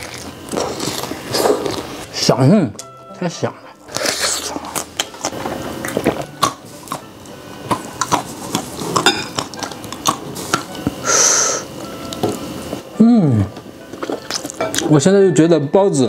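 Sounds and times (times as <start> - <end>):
chewing and mouth smacks: 14.0 - 14.8.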